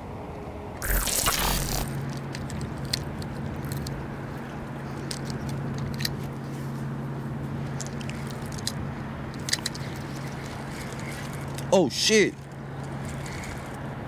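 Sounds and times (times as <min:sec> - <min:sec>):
steady low hum: 0:00.0 - 0:11.7
fishing reel clicks and rubbing: 0:09.4 - 0:11.6, 0:13.0 - 0:13.8.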